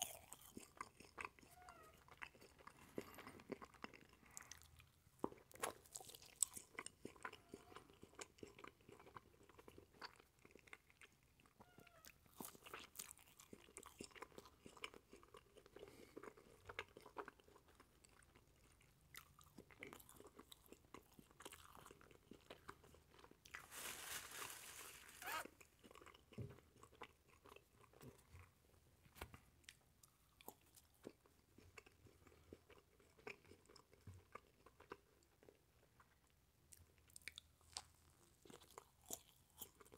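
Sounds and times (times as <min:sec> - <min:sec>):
sticky chewing mouth sounds: 0:00.0 - 0:11.6, 0:12.3 - 0:23.6.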